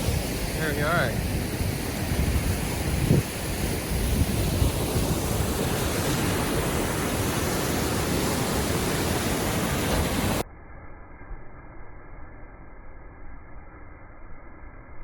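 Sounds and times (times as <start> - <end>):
waterfall rushing: 0.0 - 10.4
wind buffeting the microphone: 0.0 - 10.4.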